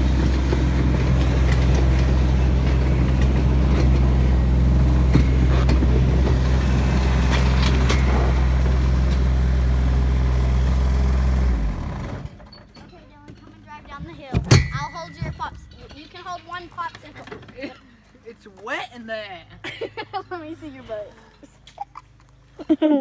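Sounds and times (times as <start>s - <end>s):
tractor engine running: 0.0s - 17.8s.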